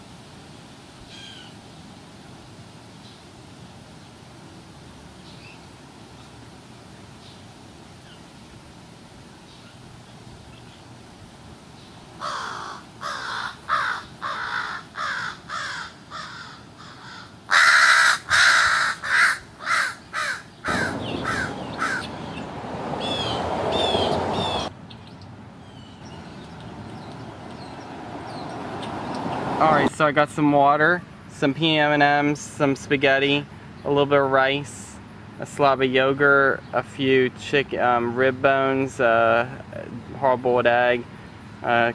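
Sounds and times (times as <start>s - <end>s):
crows cawing: 12.2s - 24.6s
rushing noise: 20.6s - 24.7s.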